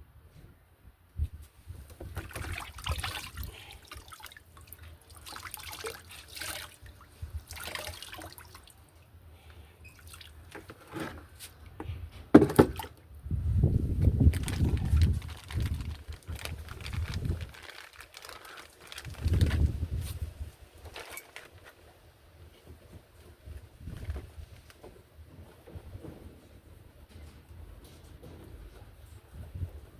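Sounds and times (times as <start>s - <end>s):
water dripping and splashing: 2.2s - 8.9s, 9.9s - 10.6s
handling noises: 14.1s - 29.1s.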